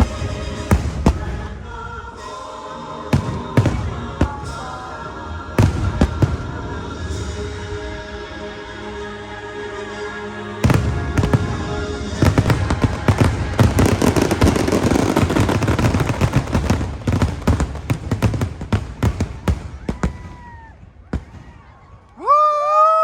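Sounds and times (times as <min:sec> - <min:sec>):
fireworks bangs and crackles: 0:00.0 - 0:02.0, 0:03.1 - 0:07.5, 0:10.6 - 0:22.2
show music: 0:00.0 - 0:19.6.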